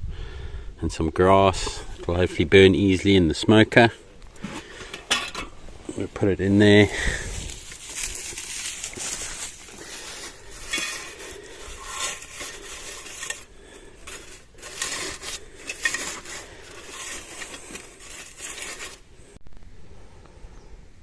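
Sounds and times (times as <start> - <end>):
dry grass rustling and crunching: 1.8 - 19.4
metal can scraping and clinking: 4.4 - 6.3, 6.9 - 19.0.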